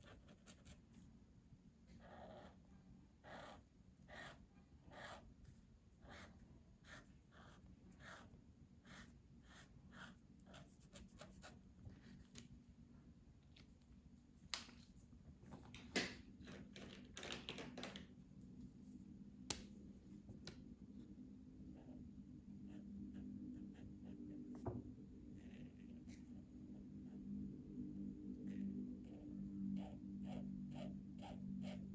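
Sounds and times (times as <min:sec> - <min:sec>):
low steady hum: 0:18.0 - 0:31.9
scratchy colouring on paper: 0:28.5 - 0:31.9.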